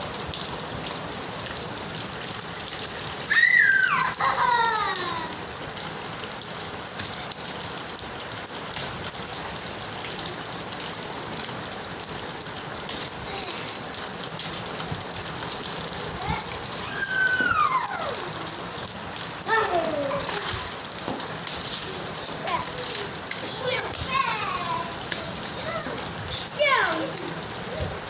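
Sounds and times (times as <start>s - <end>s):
rain pattering on surfaces: 0.0s - 28.0s
high cry falling in pitch: 3.3s - 5.4s, 16.3s - 18.8s
voice: 16.1s - 18.6s, 19.4s - 20.7s, 21.8s - 28.0s.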